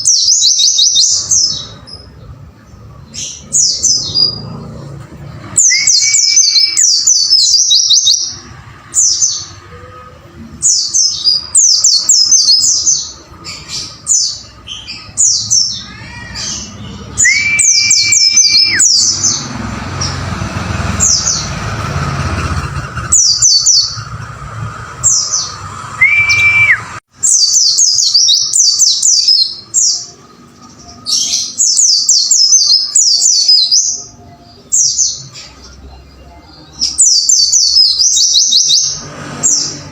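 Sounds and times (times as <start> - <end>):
bird chirping song: 0.0 - 39.9
held whistle note: 26.0 - 27.0.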